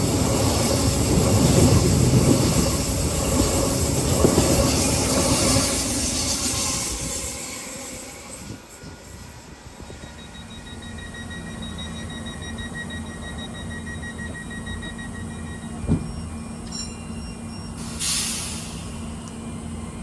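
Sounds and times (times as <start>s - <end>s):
train low hum: 0.0s - 20.0s
burst of hiss: 17.8s - 19.0s.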